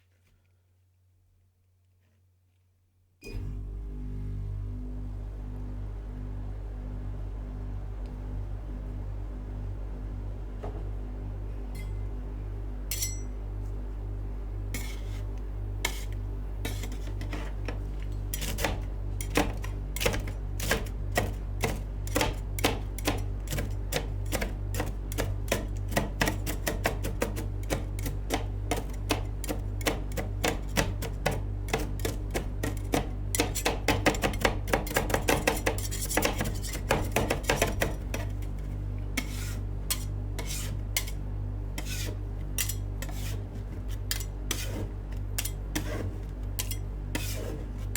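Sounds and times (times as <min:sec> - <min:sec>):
metal spatulas chopping on steel: 0:12.9 - 0:13.3, 0:15.9 - 0:38.6, 0:39.2 - 0:41.2, 0:41.8 - 0:43.4, 0:44.1 - 0:47.5.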